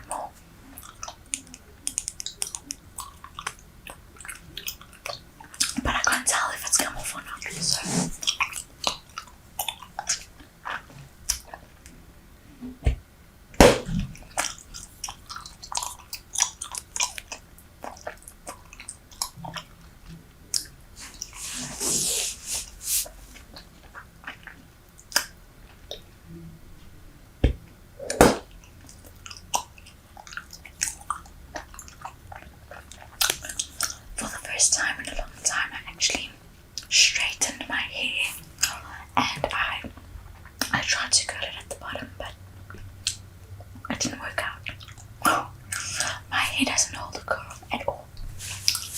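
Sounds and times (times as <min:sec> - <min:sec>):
gum chewing smacks: 0:00.0 - 0:06.1, 0:06.8 - 0:11.7, 0:13.9 - 0:21.4, 0:23.4 - 0:26.1, 0:28.0 - 0:34.3, 0:41.6 - 0:48.9.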